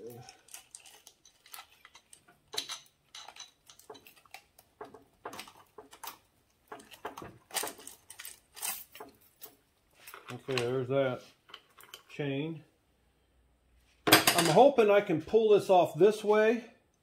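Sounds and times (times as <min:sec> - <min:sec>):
metal tools clinking: 0:00.0 - 0:06.0, 0:06.7 - 0:10.8, 0:11.5 - 0:12.2, 0:14.1 - 0:14.6.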